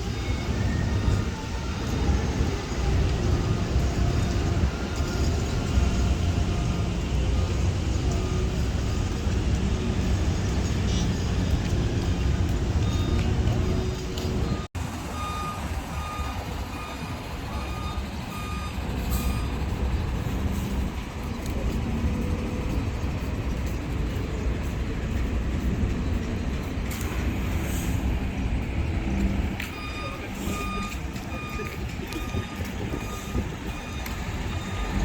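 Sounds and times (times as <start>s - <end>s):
reversing alarm beeping: 0.0s - 11.6s, 12.7s - 19.8s, 28.8s - 35.0s
heavy engine rumble: 0.0s - 35.0s.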